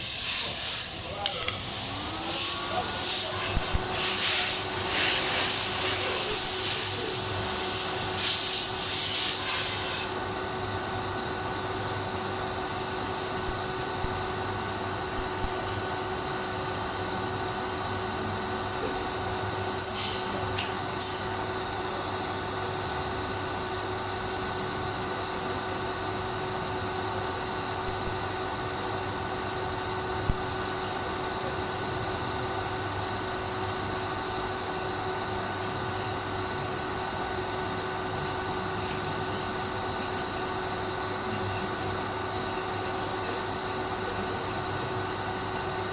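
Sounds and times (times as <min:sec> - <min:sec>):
welding arc hissing: 0:00.0 - 0:10.3.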